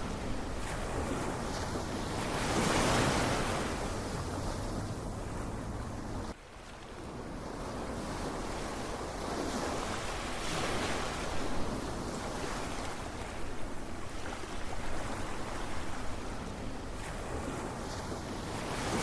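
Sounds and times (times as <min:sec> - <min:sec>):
ocean waves: 0:00.0 - 0:19.0.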